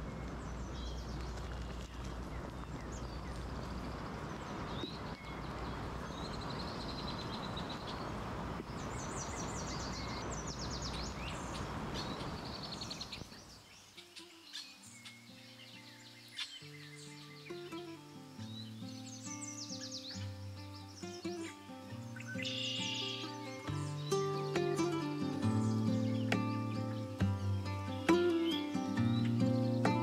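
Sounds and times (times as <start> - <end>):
songbirds chirping and trilling: 0.0 - 30.0
soft background music: 15.0 - 30.0.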